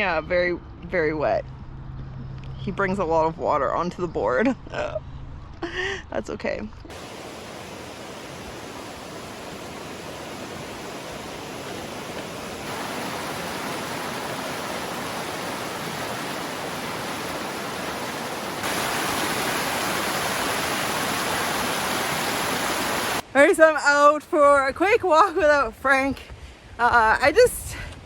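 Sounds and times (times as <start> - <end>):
creek water flowing: 6.9 - 23.2.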